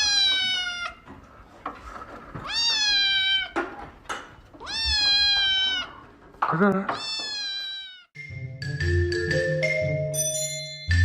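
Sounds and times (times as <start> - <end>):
cat meowing: 0.0 - 1.1, 2.4 - 3.7, 4.6 - 6.1, 6.9 - 8.2.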